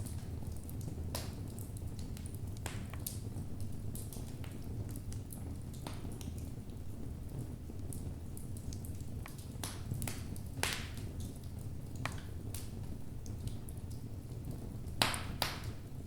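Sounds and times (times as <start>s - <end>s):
logs crackling in fireplace: 0.0s - 16.0s.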